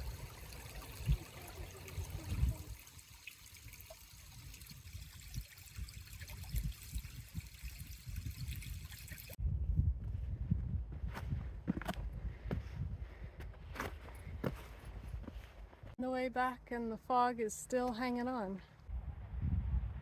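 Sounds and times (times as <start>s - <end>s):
creek trickling: 0.0s - 9.4s.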